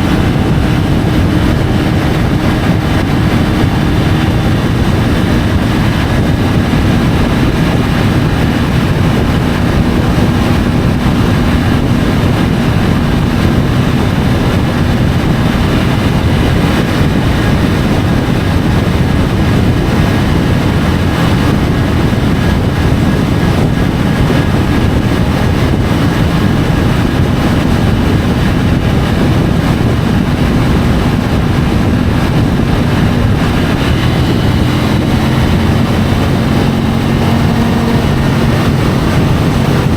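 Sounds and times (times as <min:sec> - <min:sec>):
motorcycle engine cruising: 0:00.0 - 0:39.9
wind rushing on microphone: 0:00.0 - 0:39.9.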